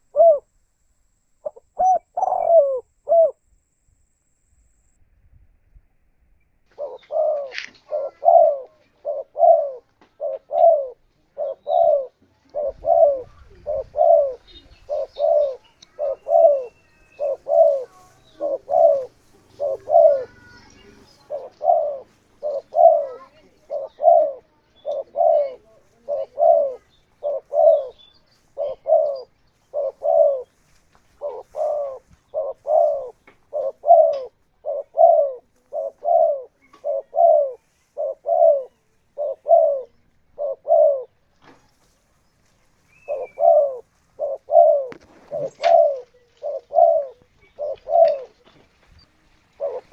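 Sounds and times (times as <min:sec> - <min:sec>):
dove cooing: 0:00.0 - 0:00.5, 0:01.4 - 0:03.5, 0:06.7 - 0:41.3, 0:42.9 - 0:49.9.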